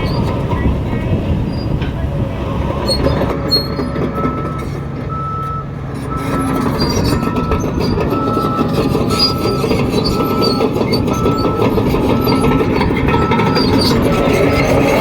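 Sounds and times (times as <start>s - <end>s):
heavy diesel engine running: 0.0s - 15.0s
metallic clanking: 0.0s - 15.0s
reversing alarm beeping: 3.4s - 14.7s.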